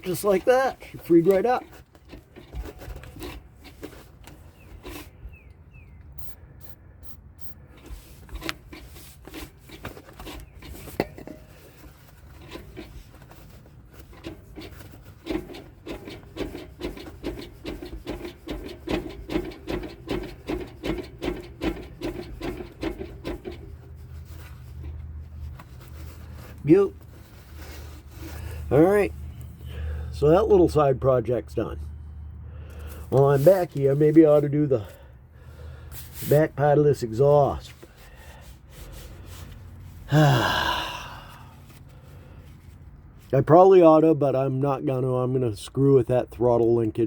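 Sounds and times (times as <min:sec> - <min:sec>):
rhythmic rubbing squeak: 0:06.1 - 0:08.1.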